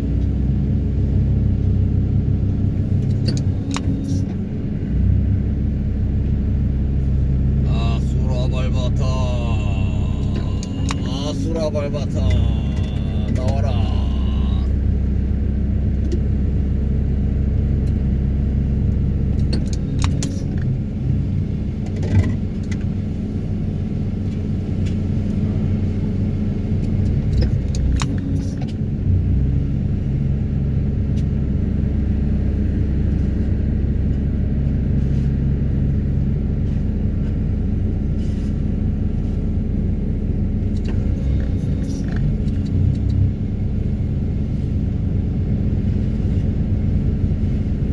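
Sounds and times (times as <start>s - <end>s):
excavator engine under load: 0.0s - 47.9s
vibro hammer droning: 7.6s - 15.2s.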